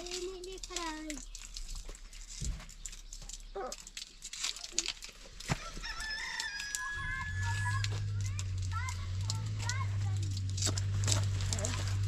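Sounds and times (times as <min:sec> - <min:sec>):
rooster crowing: 0:05.5 - 0:08.1.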